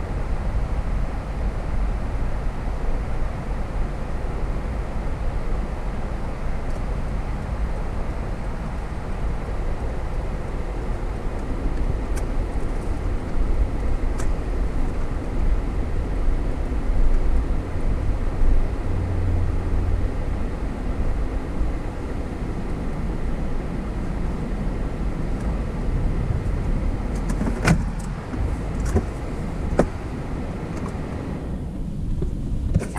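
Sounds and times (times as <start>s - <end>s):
car driving rumble: 0.0s - 32.9s
tyre and road noise: 0.0s - 32.9s.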